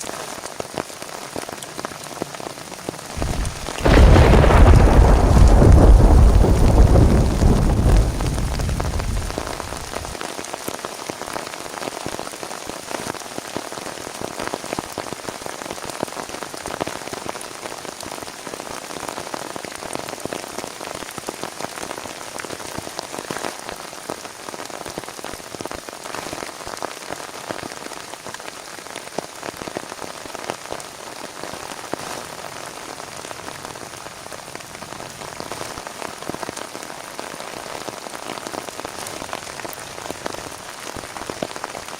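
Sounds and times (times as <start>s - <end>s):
heavy rain falling: 0.0s - 41.9s
low thunder rumble: 3.1s - 10.2s.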